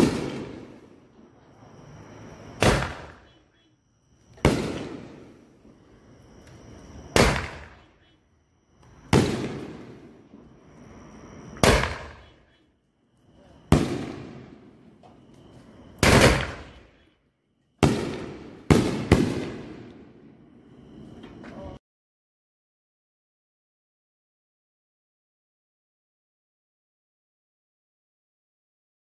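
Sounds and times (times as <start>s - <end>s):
firework bursting boom: 0.0s - 1.4s, 2.0s - 3.3s, 4.3s - 5.9s, 7.0s - 7.9s, 9.0s - 10.6s, 11.5s - 12.3s, 13.6s - 15.0s, 15.8s - 16.8s, 17.8s - 20.2s.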